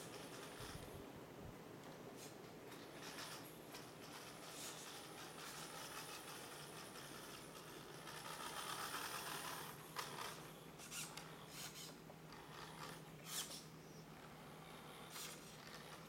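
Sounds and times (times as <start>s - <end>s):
toy car rolling across floor: 0.0s - 1.0s, 2.7s - 16.0s
short scratchy clicks: 2.7s - 13.7s.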